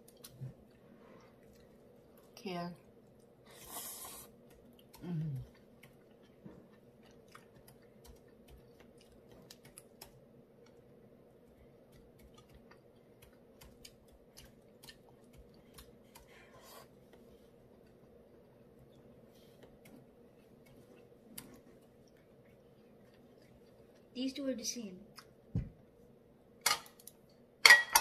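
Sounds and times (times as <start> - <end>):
person chewing food: 0.0 - 24.2
short hummed vocal sound: 5.0 - 5.6.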